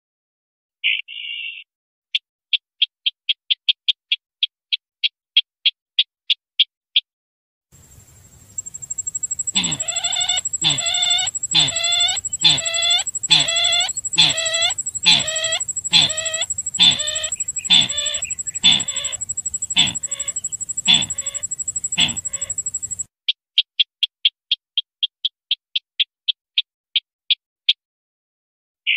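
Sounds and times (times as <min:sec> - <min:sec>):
thin high whine: 0:08.0 - 0:23.1
harsh clucking bird call: 0:08.6 - 0:23.1.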